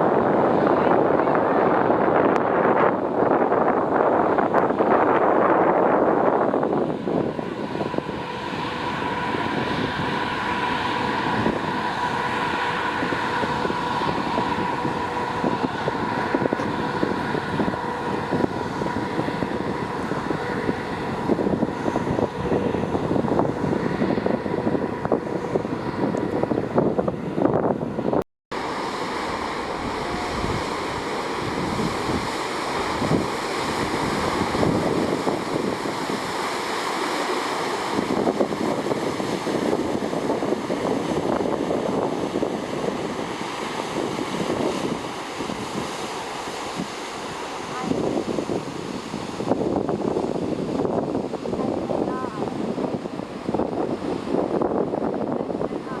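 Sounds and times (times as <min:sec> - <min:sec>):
ship machinery hum: 0:00.0 - 0:56.0
wind buffeting microphone: 0:00.0 - 0:56.0
rushing water: 0:28.5 - 0:56.0.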